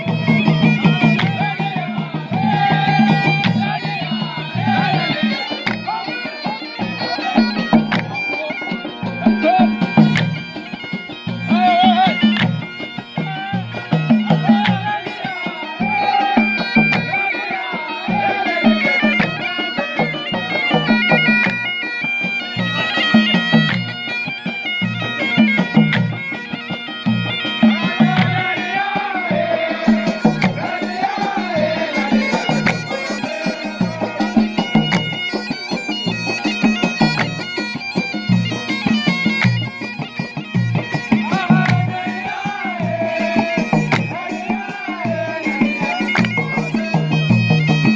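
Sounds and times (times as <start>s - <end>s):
repeating drum beat: 0.0s - 47.9s
wavering folk melody: 0.0s - 47.9s.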